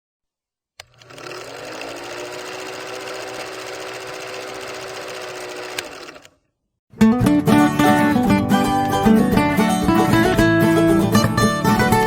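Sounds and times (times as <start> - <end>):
small motor rattling: 0.8 - 6.4.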